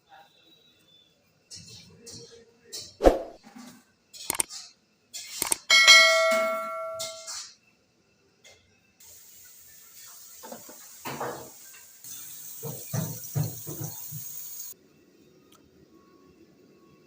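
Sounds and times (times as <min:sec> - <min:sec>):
dishes and utensils clattering: 0:04.5 - 0:07.6
steady hiss: 0:09.0 - 0:14.8.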